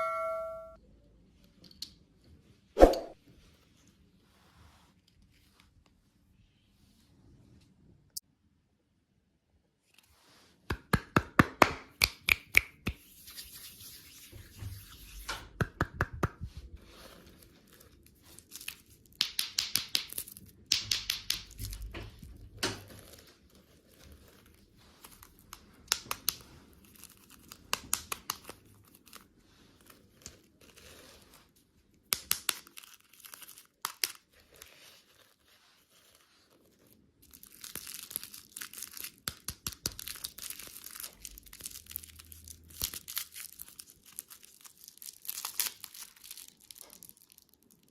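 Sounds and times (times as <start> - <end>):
plastic packaging crinkling: 32.5 - 47.9.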